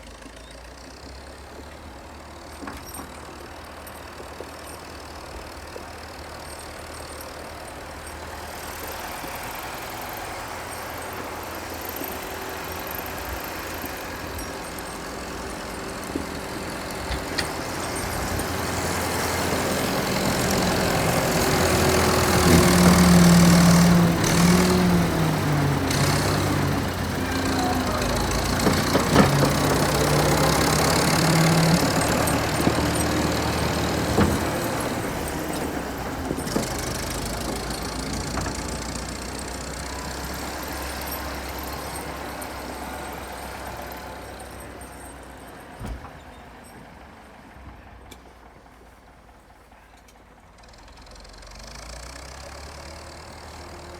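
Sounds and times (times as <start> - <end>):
tractor engine running: 0.0 - 53.9
short engine knocks: 11.8 - 41.9, 45.8 - 46.4.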